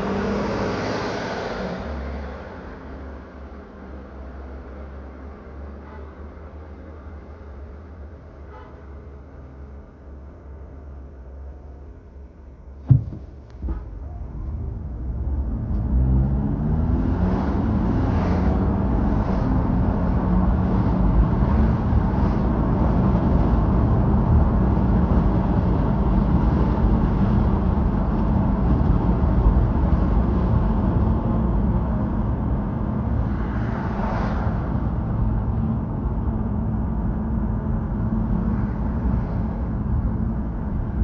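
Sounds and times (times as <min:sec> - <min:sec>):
road rumble: 0:00.0 - 0:12.0, 0:12.8 - 0:41.0
sharp knock: 0:12.9 - 0:13.9.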